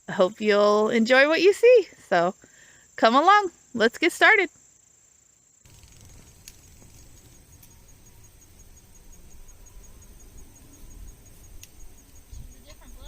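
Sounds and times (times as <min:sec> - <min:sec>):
crickets chirping: 0:00.0 - 0:13.0
faint clicks: 0:05.7 - 0:07.8, 0:11.6 - 0:11.8.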